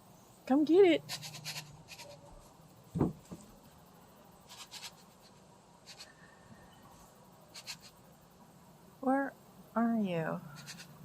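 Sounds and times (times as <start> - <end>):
faint scratches: 1.0 - 2.5, 4.4 - 6.2, 6.9 - 8.0, 10.5 - 11.0
soft thump: 2.9 - 3.5.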